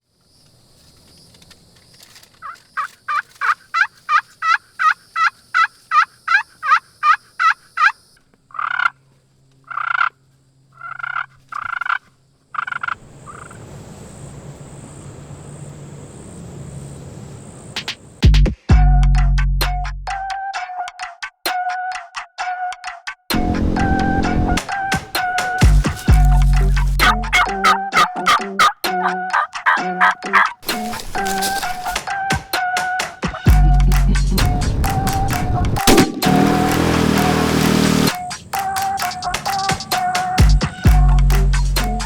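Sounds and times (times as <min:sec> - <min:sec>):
turkey yelping: 0:02.4 - 0:09.0, 0:09.7 - 0:10.1, 0:10.8 - 0:13.6, 0:24.6 - 0:33.8
high-pitched whine: 0:23.3 - 0:27.6, 0:33.5 - 0:39.6.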